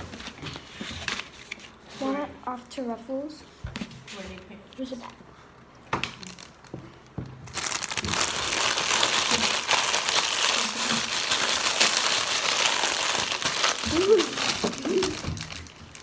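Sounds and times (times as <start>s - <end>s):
chip bag crinkling: 6.0s - 6.8s, 7.5s - 16.0s.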